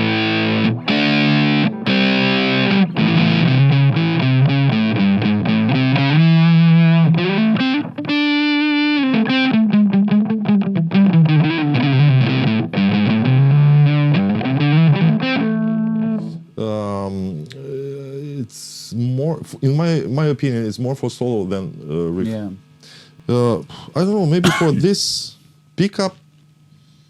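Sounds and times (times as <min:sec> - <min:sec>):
distorted electric guitar: 0:00.0 - 0:16.4.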